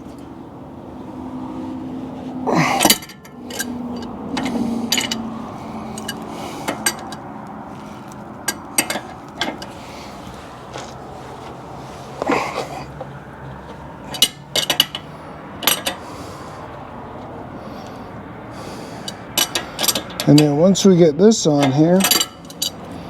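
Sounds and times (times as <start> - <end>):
wrenches clinking on metal: 2.5 - 10.0, 14.0 - 16.1, 18.8 - 23.0.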